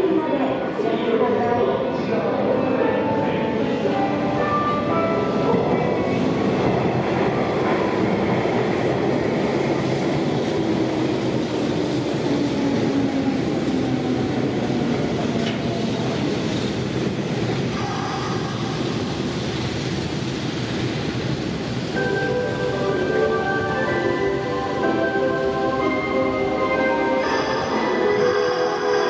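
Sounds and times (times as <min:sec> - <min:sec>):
train wheels rumbling clickety-clack: 0:05.1 - 0:25.0.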